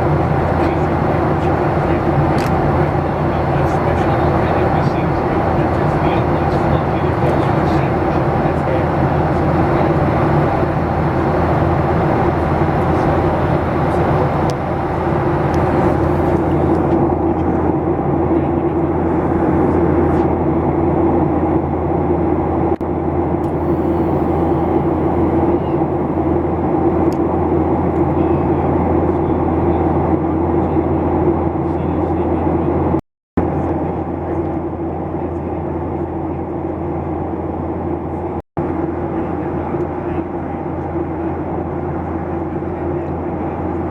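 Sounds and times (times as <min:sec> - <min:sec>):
rushing airflow: 0:00.0 - 0:18.2, 0:23.4 - 0:28.1
low hum: 0:00.0 - 0:20.9, 0:21.6 - 0:30.0
jet engine drone: 0:00.0 - 0:43.9.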